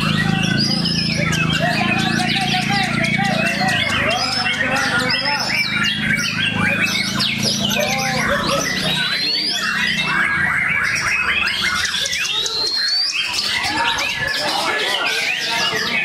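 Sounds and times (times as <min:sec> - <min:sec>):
birds singing in chorus: 0:00.0 - 0:16.0.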